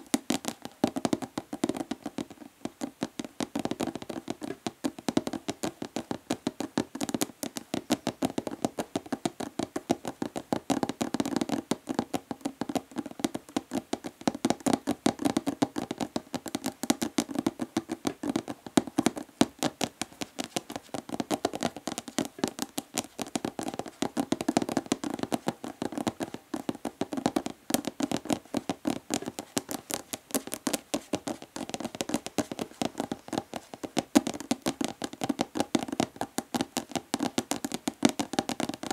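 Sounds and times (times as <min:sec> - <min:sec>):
fingernails tapping plastic bottle: 0:00.2 - 0:38.9.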